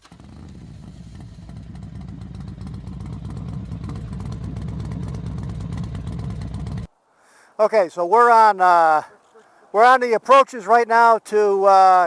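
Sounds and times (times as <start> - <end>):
motorcycle engine running: 0.0 - 6.9.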